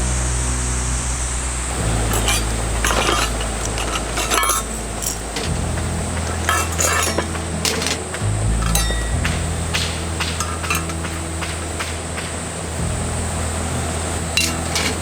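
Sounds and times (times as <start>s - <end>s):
background music with bass: 0.0s - 15.0s
metal cookware clinking: 2.0s - 12.0s, 14.4s - 15.0s.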